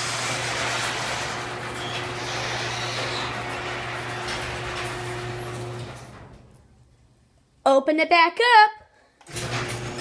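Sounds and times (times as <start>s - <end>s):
garage door opener motor humming: 0.0s - 6.8s, 9.2s - 10.0s
garage door moving: 0.0s - 6.9s, 9.2s - 10.0s.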